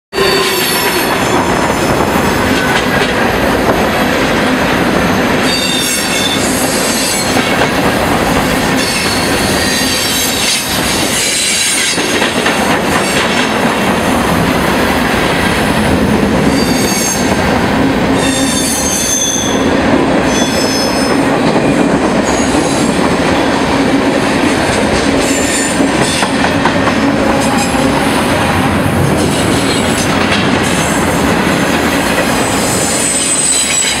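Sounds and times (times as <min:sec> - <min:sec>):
steel wheels rumbling on rails: 0:00.2 - 0:34.0
high-pitched wheel squeals: 0:32.8 - 0:34.0.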